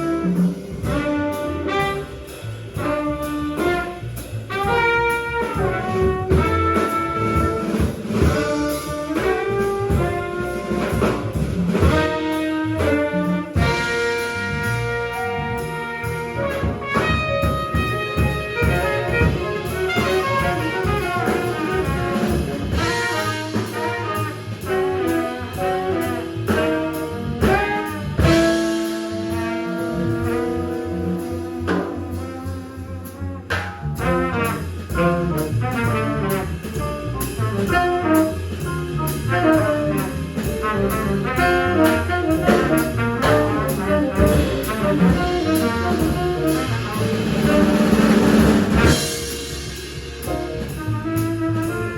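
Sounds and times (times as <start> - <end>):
busy jazz drums: 0.0 - 51.9
trumpet: 0.0 - 51.9
tenor saxophone: 11.9 - 33.5.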